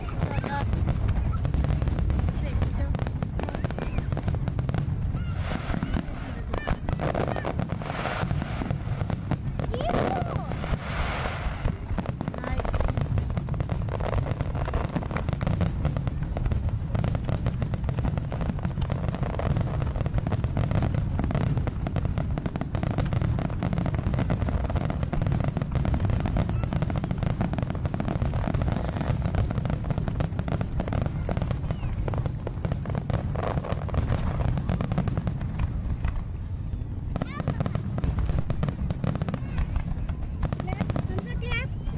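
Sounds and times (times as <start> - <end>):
voices talking: 0.0 - 10.9, 11.5 - 18.6, 26.0 - 32.6, 36.4 - 41.9
fireworks bangs and crackles: 0.0 - 41.9.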